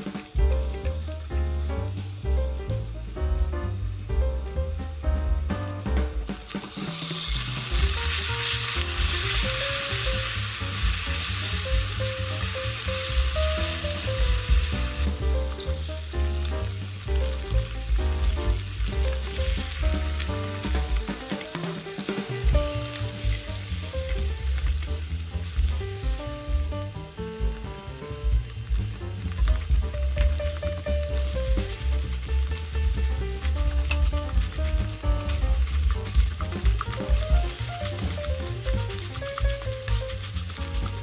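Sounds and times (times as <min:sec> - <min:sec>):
background music with bass: 0:00.0 - 0:41.0
food sizzling in frying pan: 0:00.0 - 0:41.0
spatula stirring in pan: 0:29.1 - 0:41.0.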